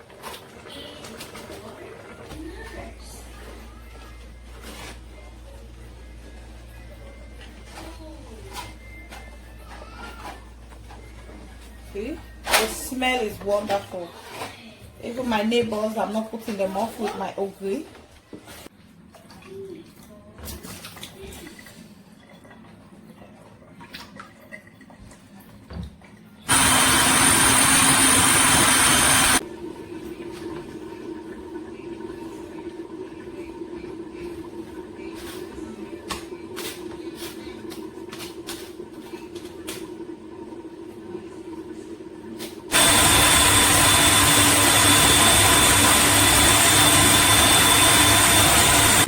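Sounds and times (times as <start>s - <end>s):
kitchen appliance motor whining: 26.5s - 29.4s, 42.7s - 49.0s
electric blender running: 26.5s - 29.9s, 42.7s - 49.0s.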